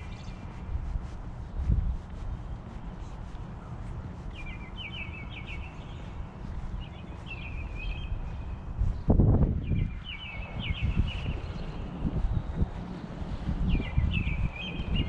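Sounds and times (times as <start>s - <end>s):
wind gust buffeting microphone: 0.0s - 3.9s, 5.2s - 15.0s
songbird trilling: 6.8s - 8.6s.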